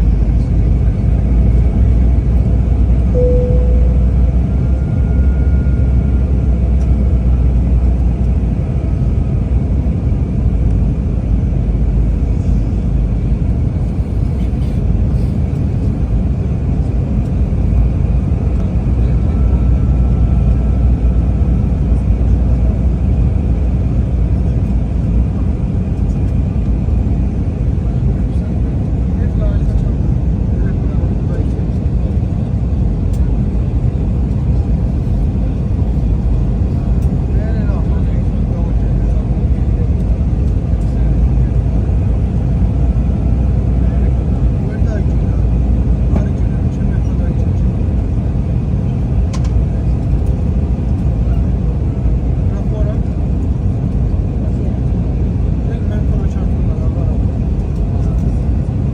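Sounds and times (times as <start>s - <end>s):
airliner cabin engine rumble: 0.0s - 58.9s
short faint tone: 3.1s - 6.2s.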